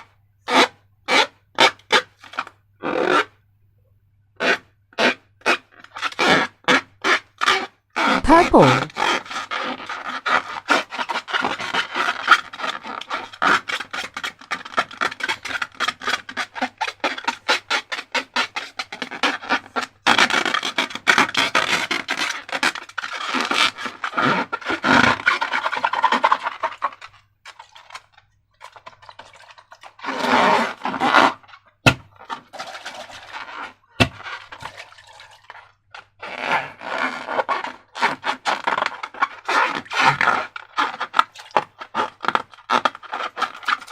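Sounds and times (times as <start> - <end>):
slime squeezed by hand: 7.5 - 9.2.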